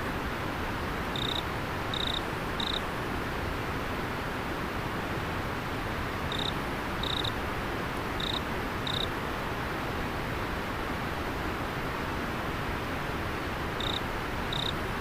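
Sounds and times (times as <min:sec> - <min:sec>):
river water flowing: 0:00.0 - 0:15.0
insect chirping: 0:01.1 - 0:02.8, 0:06.3 - 0:07.3, 0:08.2 - 0:09.1, 0:13.8 - 0:14.8.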